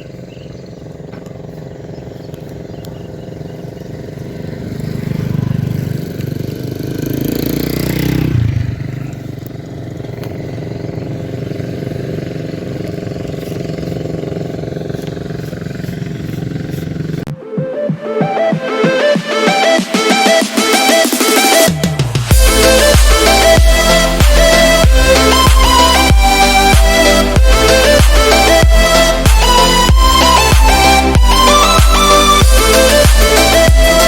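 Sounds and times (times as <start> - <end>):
small engine revving: 0.0 - 17.3, 18.2 - 34.0
music: 17.3 - 34.0.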